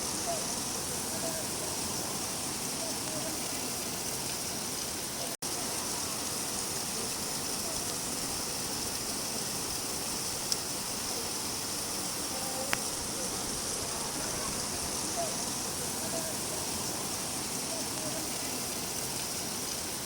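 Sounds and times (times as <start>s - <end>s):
steady rain falling: 0.0s - 20.0s
faint ticks: 12.6s - 12.9s.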